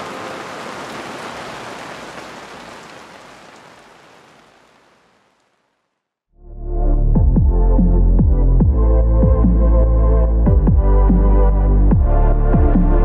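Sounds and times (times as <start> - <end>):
heavy rain splashing on housing: 0.0 - 6.0.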